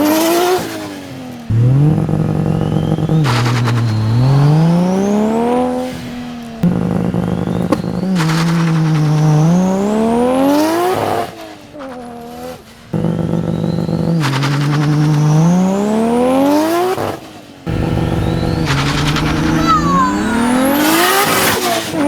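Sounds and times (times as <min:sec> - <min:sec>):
car engine revving on launch: 0:01.5 - 0:07.0, 0:17.7 - 0:21.7.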